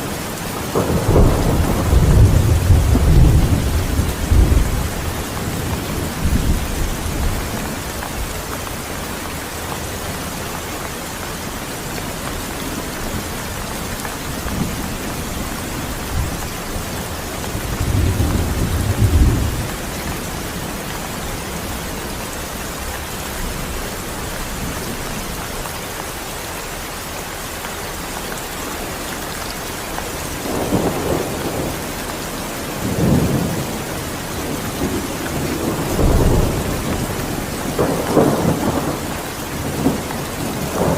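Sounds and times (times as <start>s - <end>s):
steady rain pouring: 0.0s - 40.9s
low rumbles of thunder: 0.7s - 8.3s, 12.8s - 22.3s, 30.3s - 40.9s.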